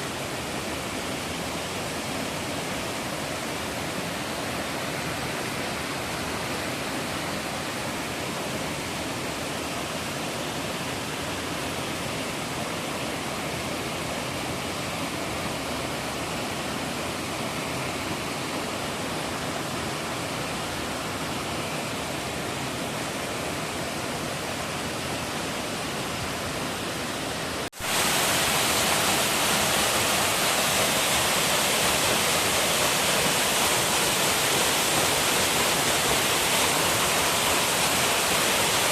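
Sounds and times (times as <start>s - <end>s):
waterfall rushing water: 0.0s - 38.9s.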